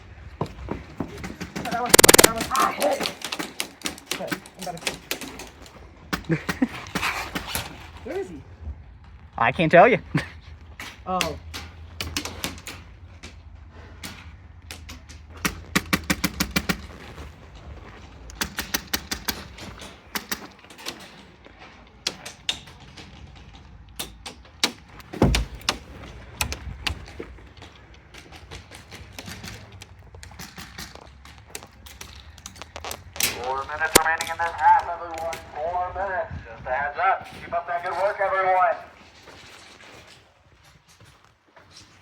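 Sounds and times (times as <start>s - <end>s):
airsoft guns firing: 1.4s - 6.8s, 14.7s - 17.0s, 18.3s - 20.6s
heavy thump: 25.1s - 25.8s.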